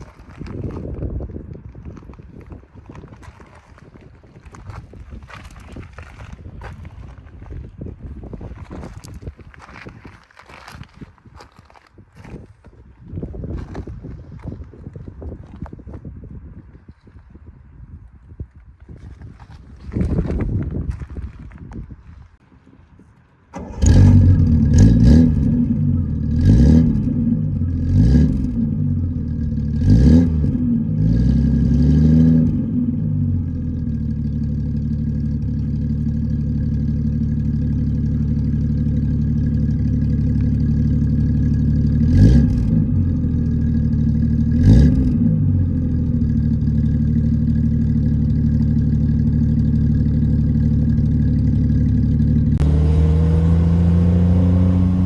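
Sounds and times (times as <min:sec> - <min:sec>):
car engine revving and idling: 0:23.5 - 0:55.0.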